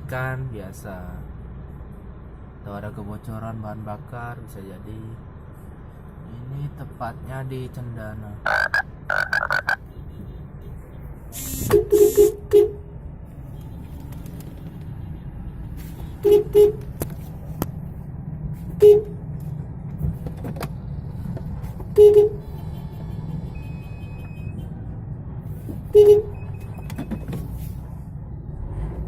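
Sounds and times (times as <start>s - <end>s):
road traffic hum: 0.0s - 29.0s
car horn honks: 8.5s - 12.9s, 16.0s - 16.9s, 18.8s - 19.2s, 21.9s - 24.8s, 25.9s - 26.4s.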